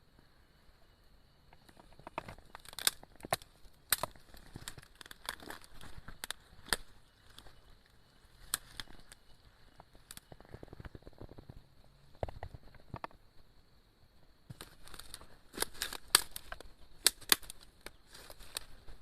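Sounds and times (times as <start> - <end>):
sharp cracks and snaps: 1.5 - 7.6, 8.4 - 9.2, 9.8 - 11.6, 14.5 - 18.9.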